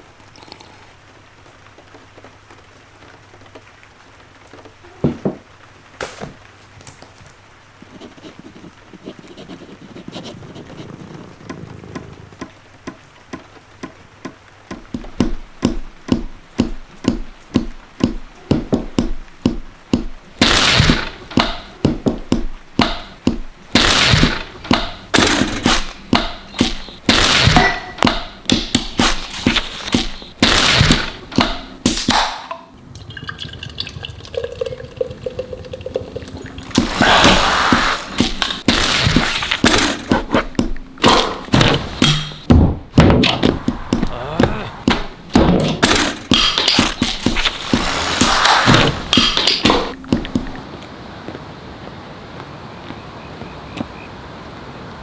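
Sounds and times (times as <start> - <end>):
sharp ticks and thunks: 10.1 - 32.7, 36.6 - 50.6
steady beat: 24.5 - 30.4, 39.6 - 50.6
water splashing and pouring: 32.7 - 39.9, 46.8 - 50.6.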